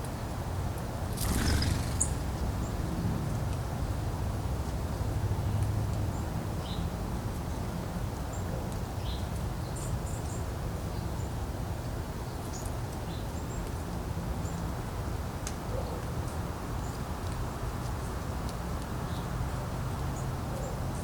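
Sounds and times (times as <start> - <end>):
wind rumbling on microphone: 1.0 - 5.5
sharp ticks: 1.1 - 2.8.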